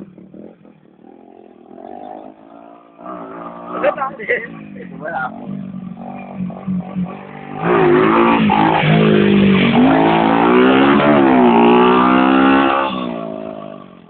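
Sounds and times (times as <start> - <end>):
motocross bike engine revving: 0.0 - 14.0.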